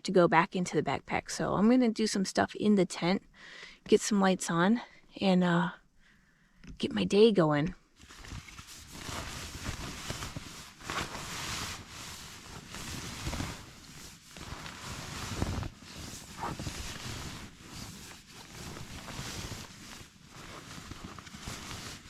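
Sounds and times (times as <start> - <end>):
nylon fabric rustling: 8.0 - 22.0.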